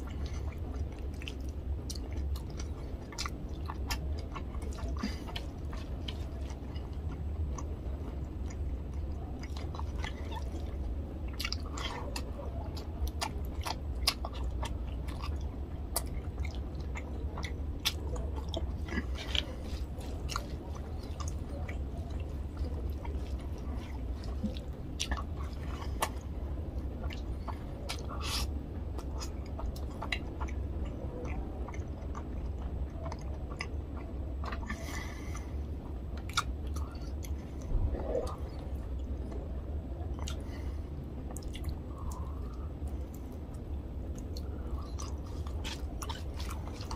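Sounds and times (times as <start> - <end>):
close chewing with wet mouth clicks: 0.0 - 46.9
steady low hum: 0.0 - 46.9.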